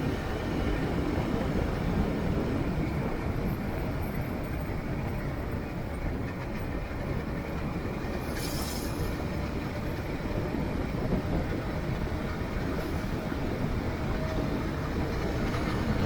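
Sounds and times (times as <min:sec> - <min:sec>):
brief hiss: 0:08.3 - 0:09.1.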